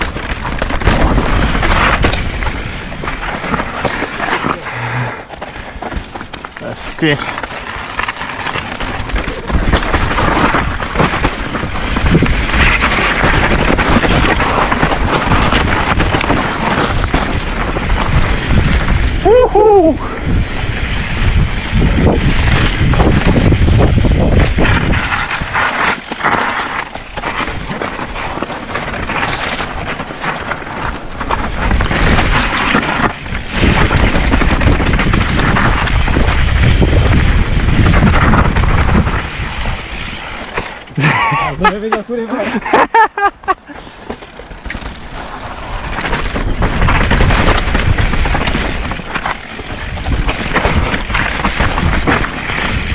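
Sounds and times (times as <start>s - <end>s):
bike knocks and rattles: 0.0s - 4.2s, 5.3s - 19.2s, 21.3s - 41.0s, 43.8s - 52.9s
tyres rumbling over rock: 0.0s - 42.8s, 43.8s - 52.9s
wind buffeting microphone: 8.7s - 25.6s, 31.0s - 40.2s, 45.2s - 52.9s.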